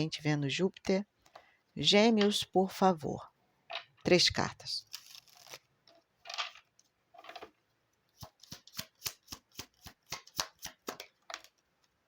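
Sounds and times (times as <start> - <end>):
cards rustling: 4.8 - 7.5
cards snapping while shuffled: 8.2 - 11.5.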